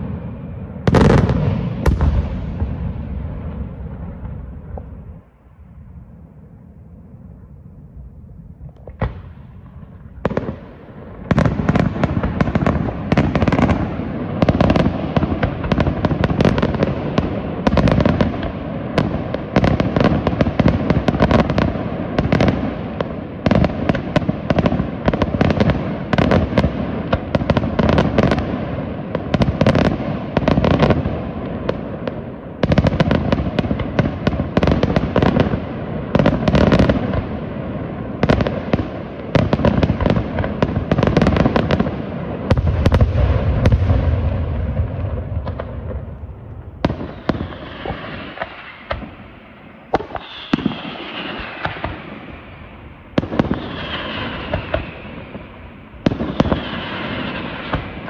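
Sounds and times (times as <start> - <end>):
firecrackers banging: 0.9 - 5.2, 32.6 - 58.0.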